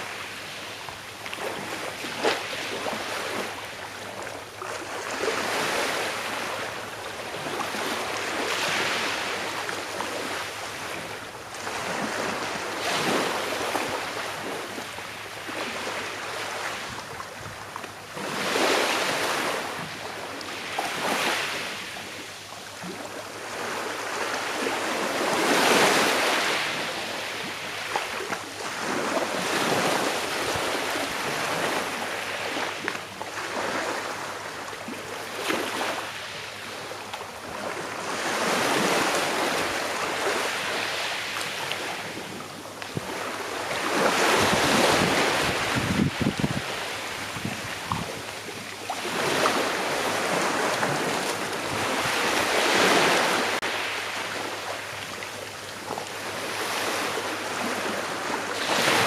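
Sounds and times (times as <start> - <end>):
sea waves washing onto shore: 0.0 - 59.0.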